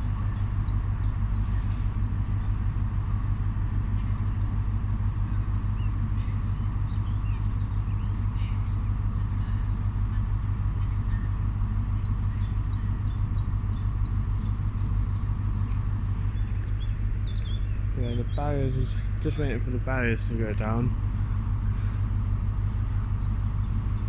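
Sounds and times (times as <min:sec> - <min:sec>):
faint steady whine: 0:00.0 - 0:24.0
train engine idling: 0:00.0 - 0:24.0
bird chirping: 0:00.1 - 0:02.6, 0:11.6 - 0:21.0, 0:22.4 - 0:24.0.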